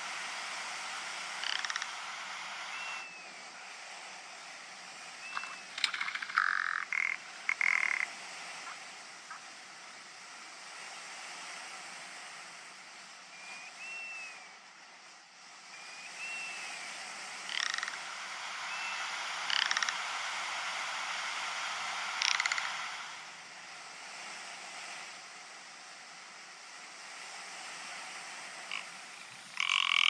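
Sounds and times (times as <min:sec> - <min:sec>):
background hiss: 0:00.0 - 0:30.0
bird rattling croaks: 0:01.2 - 0:02.8, 0:05.3 - 0:09.4, 0:17.4 - 0:18.2, 0:19.3 - 0:20.2, 0:22.0 - 0:23.1, 0:28.7 - 0:30.0.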